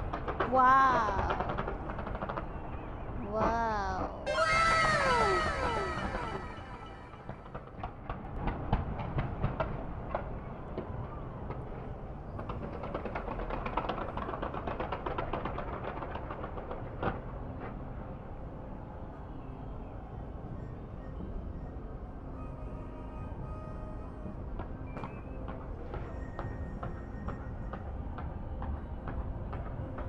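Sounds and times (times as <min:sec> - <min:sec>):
fireworks bangs and crackling: 0:00.0 - 0:03.2, 0:04.3 - 0:17.3.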